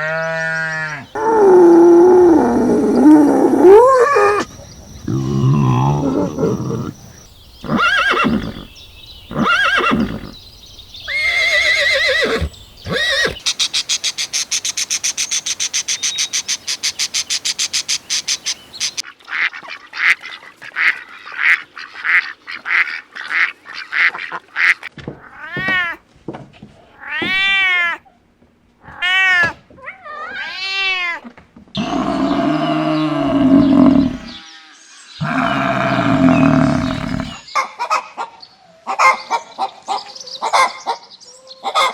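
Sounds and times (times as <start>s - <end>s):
harsh low animal calls: 1.1s - 8.7s, 31.8s - 34.4s, 35.2s - 37.4s
rising and falling calls: 11.1s - 14.2s, 31.8s - 34.4s, 35.2s - 37.4s.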